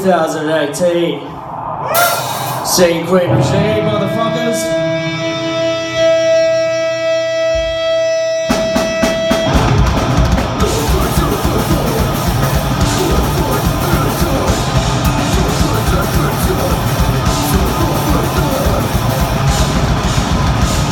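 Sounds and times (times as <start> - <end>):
distorted guitar note ringing: 1.8 - 20.9
metal band playing: 1.9 - 20.9
drum hits: 8.5 - 20.9.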